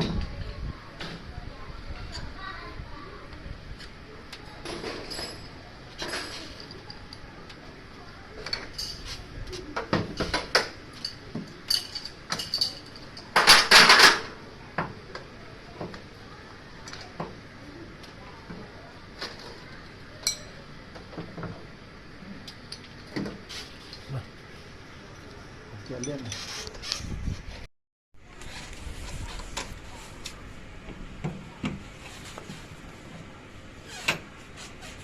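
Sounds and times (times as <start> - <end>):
metal tools clinking and knocking: 10.2 - 14.3, 20.2 - 20.6.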